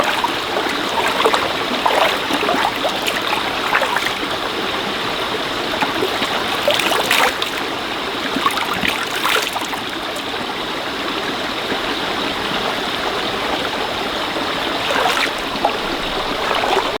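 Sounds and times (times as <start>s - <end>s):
stream running over rocks: 0.0s - 17.0s
water splashes and gurgles: 0.0s - 17.0s.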